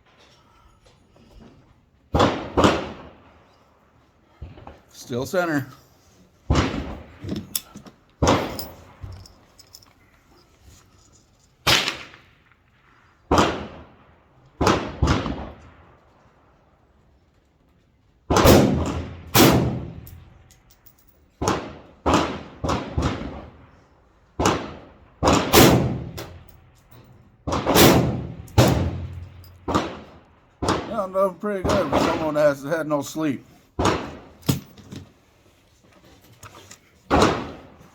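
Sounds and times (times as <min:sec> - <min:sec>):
rifle gunshots with echo: 0:02.2 - 0:03.3, 0:13.3 - 0:14.0, 0:14.6 - 0:15.9, 0:18.3 - 0:20.4, 0:21.4 - 0:23.7, 0:24.4 - 0:26.6, 0:27.4 - 0:34.4, 0:37.1 - 0:37.8.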